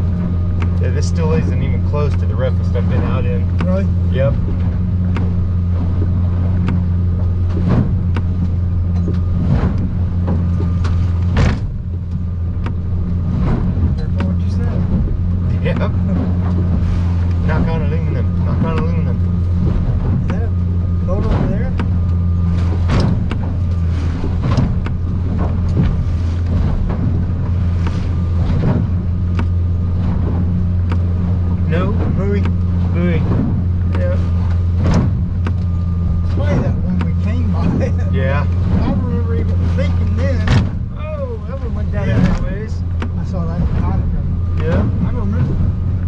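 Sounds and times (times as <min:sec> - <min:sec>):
boat motor droning: 0:00.0 - 0:46.0
hull pounding through chop: 0:00.0 - 0:46.0
outboard engine running: 0:00.0 - 0:46.0
water splashing against boat: 0:00.0 - 0:46.0
sharp knocks: 0:02.9 - 0:17.9, 0:18.5 - 0:31.2, 0:31.9 - 0:37.9, 0:38.5 - 0:41.0.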